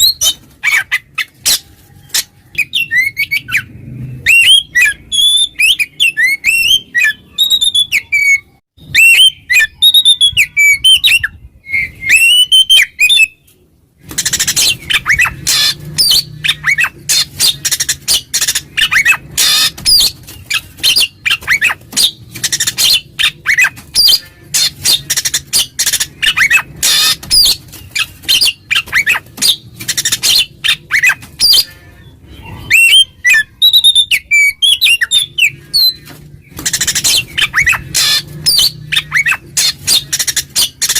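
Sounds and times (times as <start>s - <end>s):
bird singing whistled phrases: 2.6s - 13.4s, 32.5s - 36.0s
bird rapid harsh chattering: 14.0s - 31.7s, 32.6s - 40.9s.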